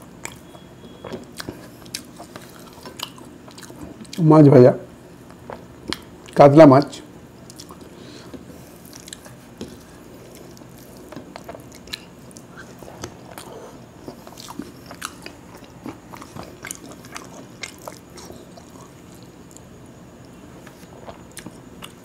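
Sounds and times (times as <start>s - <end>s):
chewing with clicks and crunches: 0.2s - 4.2s, 5.2s - 6.4s, 7.4s - 22.0s.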